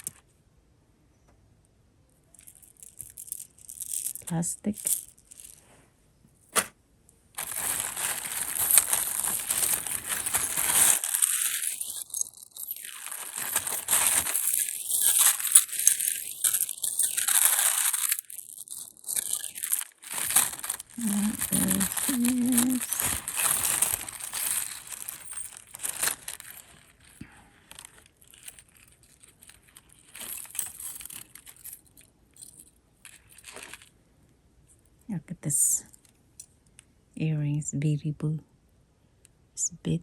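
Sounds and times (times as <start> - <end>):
plastic wrapping crinkling: 0.0 - 0.2, 7.4 - 33.9.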